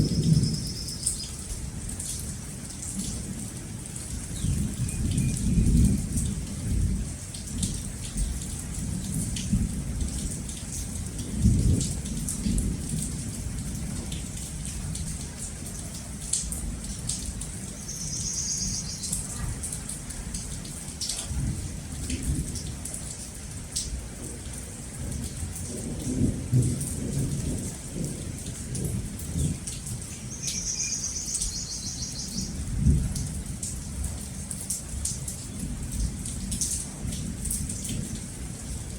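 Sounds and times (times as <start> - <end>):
heavy rain: 0.0 - 38.9
low thunder rumbling: 4.3 - 14.1, 25.0 - 30.4, 32.4 - 33.9.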